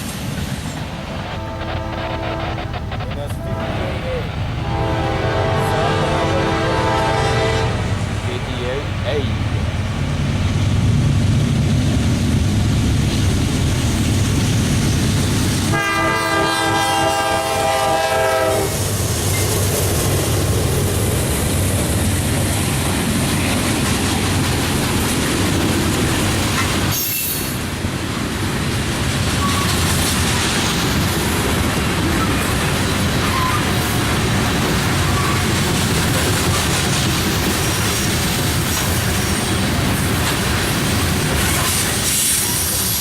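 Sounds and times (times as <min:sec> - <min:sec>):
diesel locomotives rumbling: 0:00.0 - 0:43.0
locomotive air horn: 0:01.0 - 0:08.0, 0:15.7 - 0:18.9.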